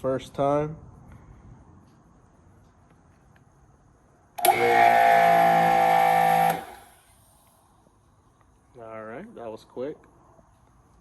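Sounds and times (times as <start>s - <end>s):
pressure washer motor whining: 4.4s - 7.0s.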